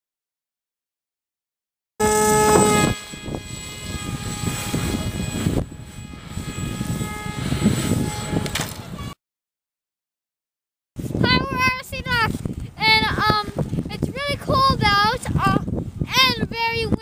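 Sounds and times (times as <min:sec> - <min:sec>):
electric motor propeller whine: 0:02.0 - 0:09.0
wind buffeting microphone: 0:02.0 - 0:09.2, 0:11.0 - 0:17.0.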